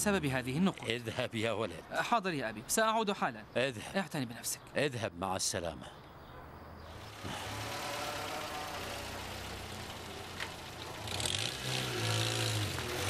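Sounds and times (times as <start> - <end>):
car engine humming: 6.8 - 13.0.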